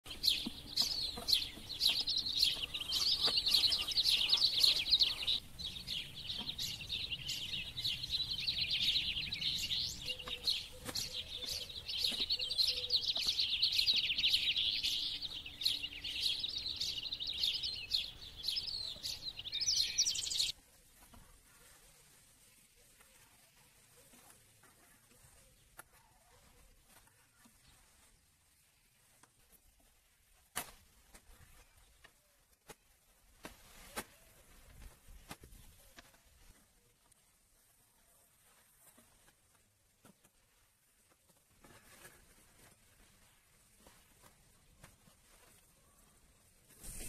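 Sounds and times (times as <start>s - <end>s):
small birds chirping and singing: 0.0s - 29.8s.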